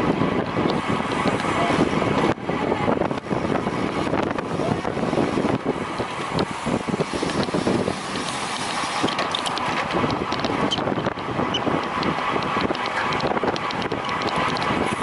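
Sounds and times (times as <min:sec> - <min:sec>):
wind buffeting microphone: 0:00.0 - 0:15.0
faint bike ticks: 0:00.1 - 0:15.0.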